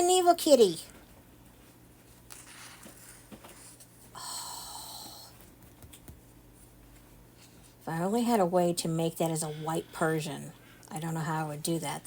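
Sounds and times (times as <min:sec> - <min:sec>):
person exhaling: 0:04.2 - 0:05.4.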